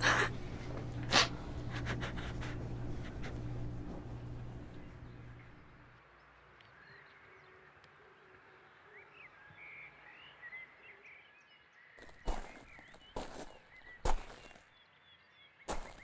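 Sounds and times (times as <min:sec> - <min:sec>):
low hum: 0:00.0 - 0:06.0
faint birds chirping: 0:00.0 - 0:16.0.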